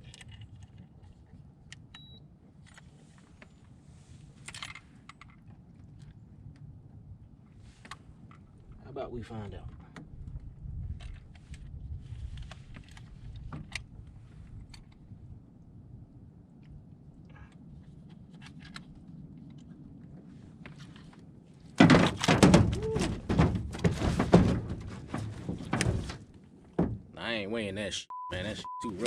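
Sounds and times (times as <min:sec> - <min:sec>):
fish thrashing with knocks and slaps: 0:21.8 - 0:26.2
handling knocks and clicks: 0:21.8 - 0:27.1.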